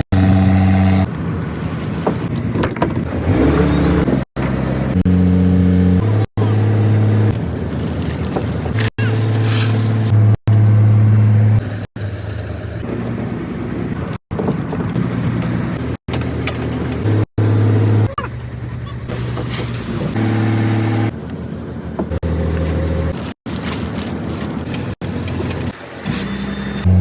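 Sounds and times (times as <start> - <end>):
boat engine low hum: 0.0 - 27.0.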